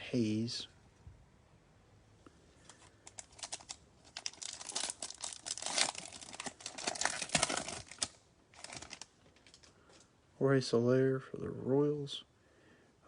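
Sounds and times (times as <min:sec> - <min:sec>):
foil wrapper crinkling and tearing: 0:02.6 - 0:09.8.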